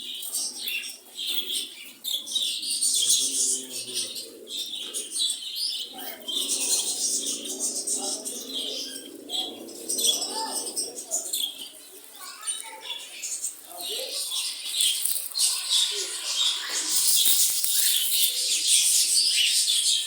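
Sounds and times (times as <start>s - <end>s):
birds chirping and screeching: 0.0s - 20.0s
lower bird calls: 13.0s - 20.0s.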